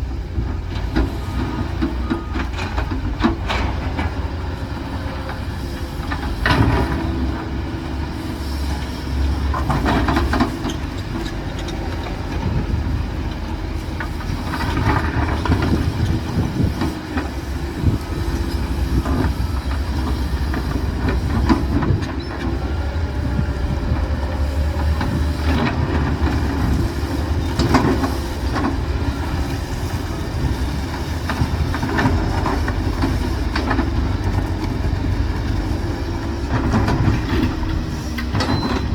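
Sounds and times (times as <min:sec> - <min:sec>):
diesel engine rumble: 0:00.0 - 0:38.9.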